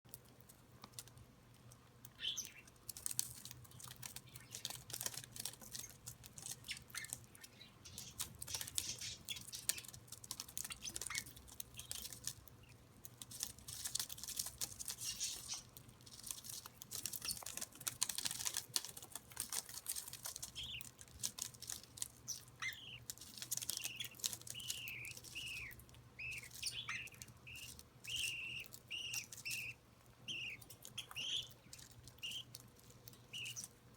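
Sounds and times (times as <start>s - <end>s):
birds shuffling and scratching: 0.1s - 33.9s
clicks of bird feet and beaks: 0.1s - 33.9s
short bird chirping calls: 22.3s - 23.0s, 23.7s - 32.5s, 33.3s - 33.7s.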